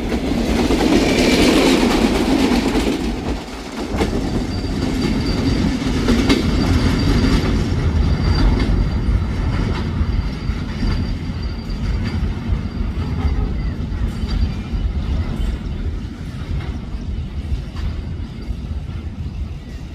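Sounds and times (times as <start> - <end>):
train rumbling past: 0.0 - 19.9
high wheel squeal: 4.2 - 19.8.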